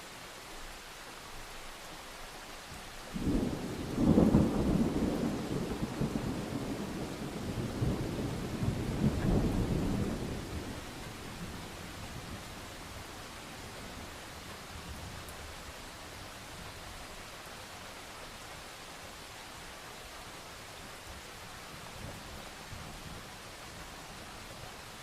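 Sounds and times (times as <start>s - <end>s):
steady rain: 0.0s - 25.0s
thunder rumbling: 3.2s - 12.7s.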